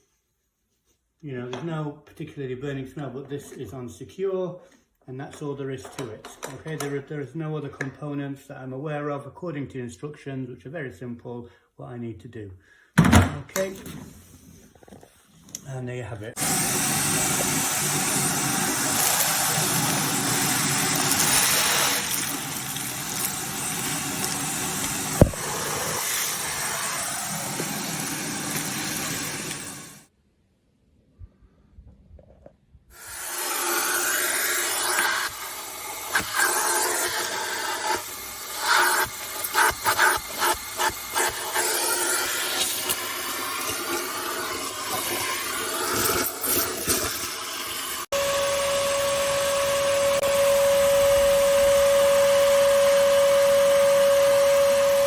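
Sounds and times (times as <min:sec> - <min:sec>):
vacuum cleaner motor running: 0:16.4 - 0:30.1, 0:33.0 - 0:55.0.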